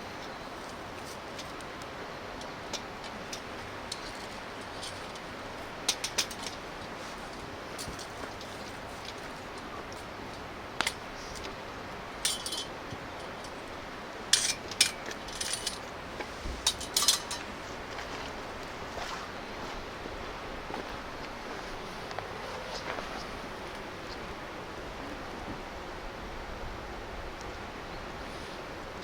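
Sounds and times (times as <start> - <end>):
metal camp gear clinking: 2.4 - 9.4, 12.2 - 13.7, 14.3 - 15.9, 16.6 - 17.6.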